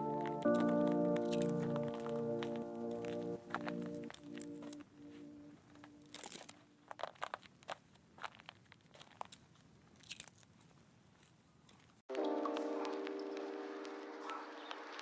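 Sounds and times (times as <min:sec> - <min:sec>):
soft background music: 0:00.0 - 0:06.8, 0:12.1 - 0:15.0
crackly rustles: 0:00.0 - 0:15.0.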